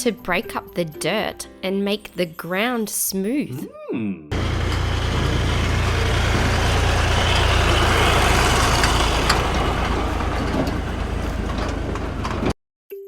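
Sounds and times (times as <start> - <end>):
tractor engine running: 4.3 - 12.6.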